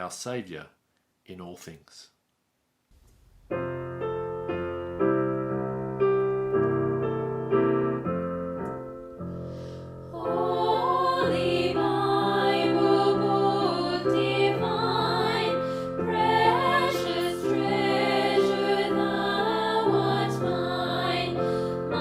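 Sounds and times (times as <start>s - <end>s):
piano playing hymn chords: 3.4s - 22.0s
voices singing: 10.1s - 22.0s.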